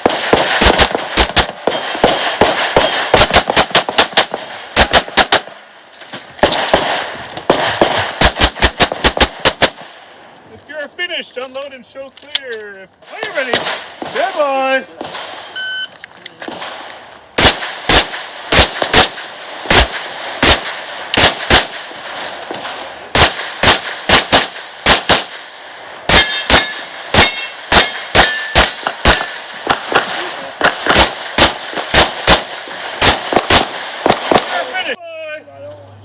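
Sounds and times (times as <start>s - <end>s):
rapid pistol shots: 0.0s - 5.7s, 6.4s - 10.1s, 13.0s - 15.6s, 16.4s - 34.8s
shot timer beep: 15.6s - 15.9s
steel targets clanging: 26.1s - 30.4s.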